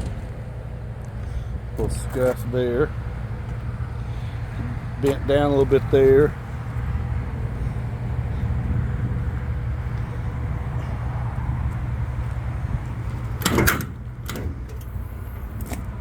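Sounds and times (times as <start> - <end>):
truck engine idling: 0.0 - 16.0
metal compartment door clanking: 13.1 - 15.9.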